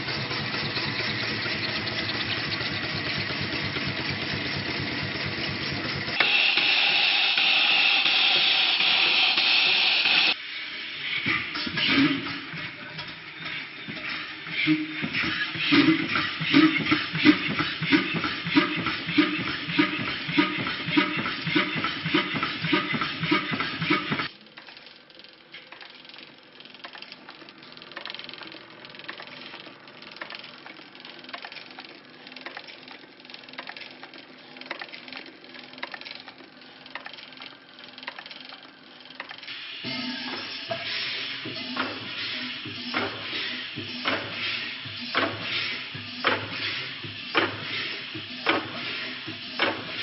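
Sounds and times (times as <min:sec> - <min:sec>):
faint mechanical ticking: 0:00.0 - 0:06.2, 0:24.3 - 0:39.5
engine running: 0:00.0 - 0:10.4, 0:11.2 - 0:24.3.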